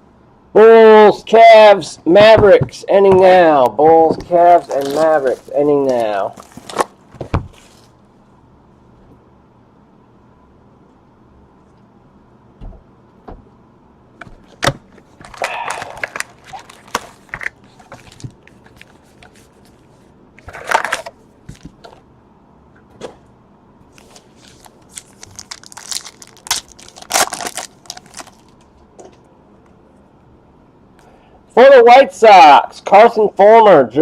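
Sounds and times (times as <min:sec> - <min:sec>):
foil wrappers crinkling and tearing: 0:04.3 - 0:07.9, 0:15.1 - 0:19.8, 0:20.4 - 0:21.1, 0:24.0 - 0:28.7
cards and cases clicking: 0:14.3 - 0:19.4, 0:20.4 - 0:22.0.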